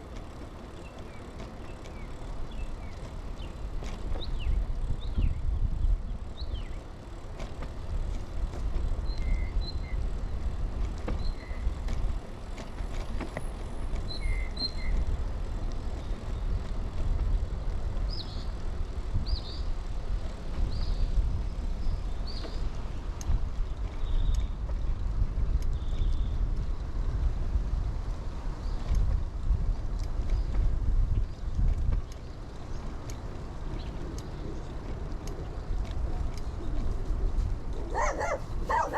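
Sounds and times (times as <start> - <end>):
mountain bike rolling: 0.0 - 38.9
wind noise: 2.3 - 6.8, 7.5 - 38.9
birds chirping: 37.9 - 38.9.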